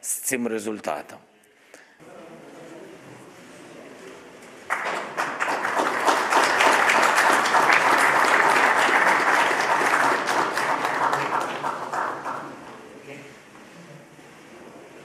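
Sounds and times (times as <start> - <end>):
audience applauding: 4.7 - 12.8.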